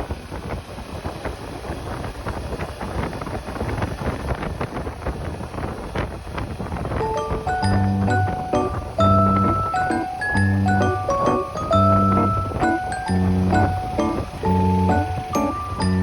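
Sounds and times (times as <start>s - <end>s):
wind buffeting microphone: 0.0s - 16.0s
music with steady notes: 7.0s - 16.0s.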